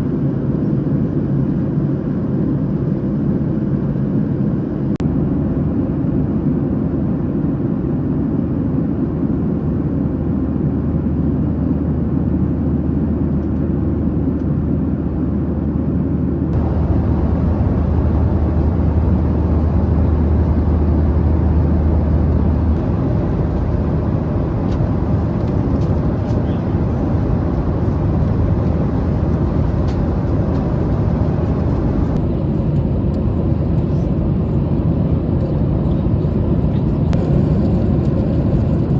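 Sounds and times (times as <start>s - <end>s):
airplane cabin rumble: 0.0s - 38.9s
deep hum: 16.5s - 35.2s.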